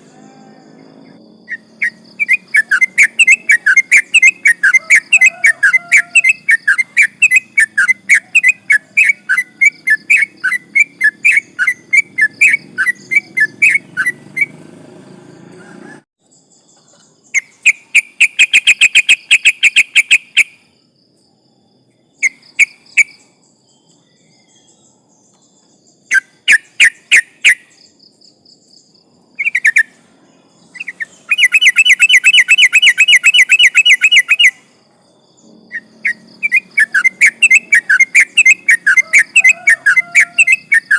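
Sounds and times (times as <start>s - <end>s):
bird singing whistled notes: 0.0s - 14.7s, 17.2s - 20.9s, 21.9s - 40.9s
bird rattling trill: 35.7s - 40.9s.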